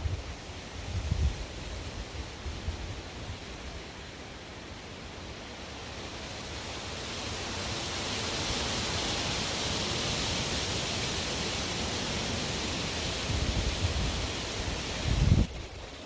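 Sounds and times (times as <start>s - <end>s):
wind buffeting microphone: 0.0s - 3.0s, 13.2s - 15.9s
strong wind rushing: 13.2s - 15.8s.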